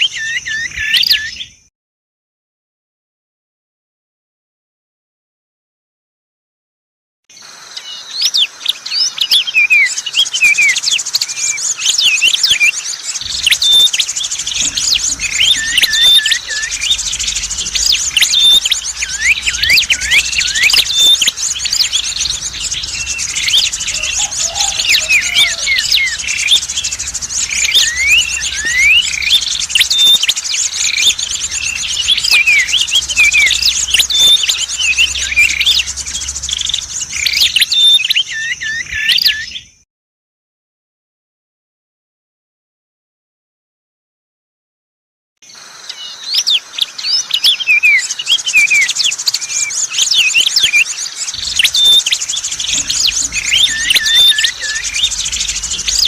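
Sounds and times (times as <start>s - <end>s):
songbirds chirping and whistling: 0.0s - 1.7s, 7.4s - 39.8s, 45.5s - 56.0s
steady high trill: 13.2s - 38.5s, 51.4s - 56.0s.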